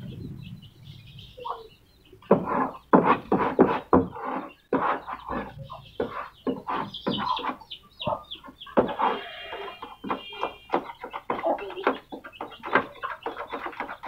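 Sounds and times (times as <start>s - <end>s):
caged birds calling: 0.0s - 14.0s.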